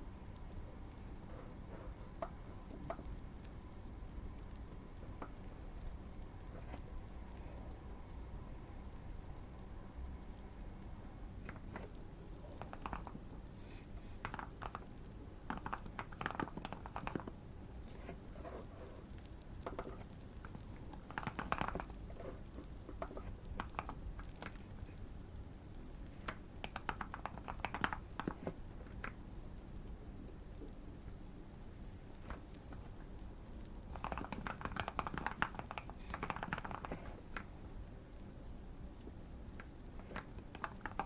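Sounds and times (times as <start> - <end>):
faint low background noise: 0.0 - 41.0
mechanical keyboard typing: 11.6 - 13.2, 14.2 - 17.4, 19.6 - 24.6, 26.2 - 29.2, 33.8 - 37.1, 39.6 - 41.0.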